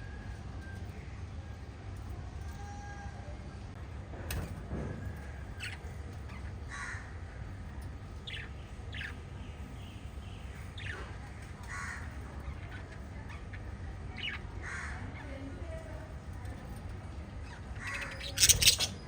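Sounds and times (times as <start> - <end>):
steady low hum: 0.0 - 19.0
lovebirds chirping harshly: 17.4 - 19.0.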